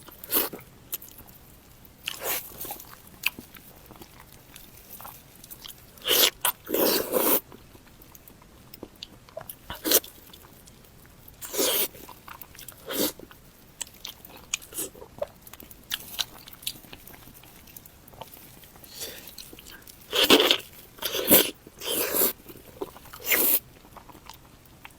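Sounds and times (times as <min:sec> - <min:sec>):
loud bites and chewing: 0:02.0 - 0:07.9, 0:11.4 - 0:24.9.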